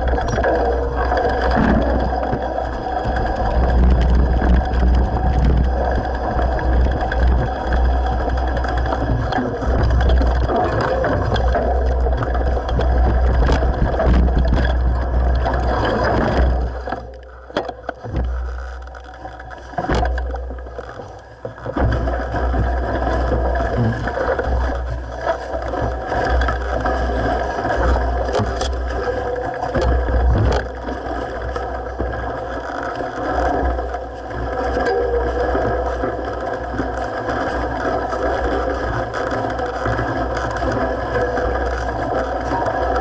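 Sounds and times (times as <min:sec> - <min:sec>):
wind rumble on microphone: 0:00.0 - 0:17.3, 0:18.0 - 0:43.0
bike tyre noise: 0:00.0 - 0:28.7
bike rattling and knocking: 0:00.0 - 0:28.9, 0:29.5 - 0:31.6, 0:34.4 - 0:43.0.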